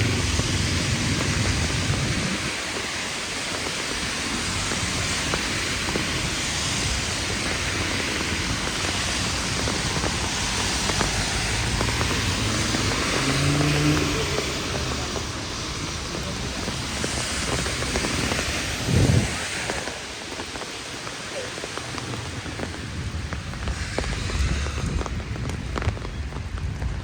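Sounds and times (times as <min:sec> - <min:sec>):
heavy rain falling: 0:00.0 - 0:27.0
vehicle passing with low hum: 0:10.7 - 0:19.4.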